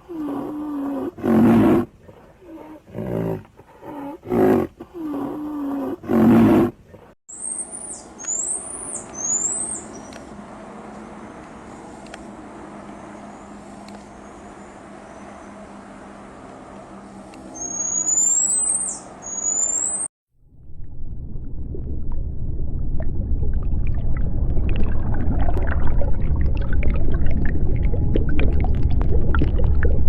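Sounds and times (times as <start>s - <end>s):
steady outdoor hiss: 0.0s - 19.4s.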